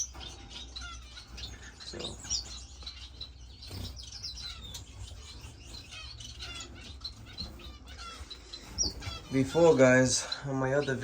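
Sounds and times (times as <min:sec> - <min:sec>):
finches chirping: 0:00.0 - 0:11.0.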